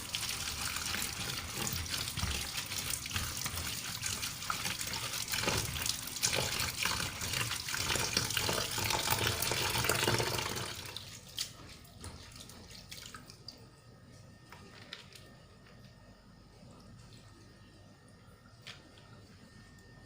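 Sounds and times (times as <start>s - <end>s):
tap water running into sink: 0.0s - 13.3s.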